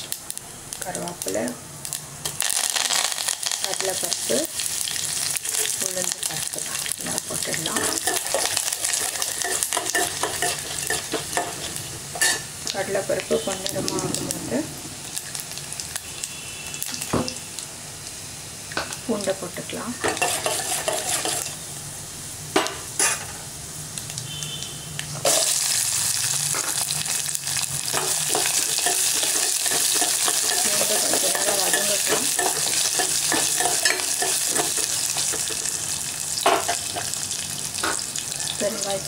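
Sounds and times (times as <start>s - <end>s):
loud sizzling in hot oil: 0.0s - 39.0s
ladle clinking and scraping pot: 20.0s - 21.5s.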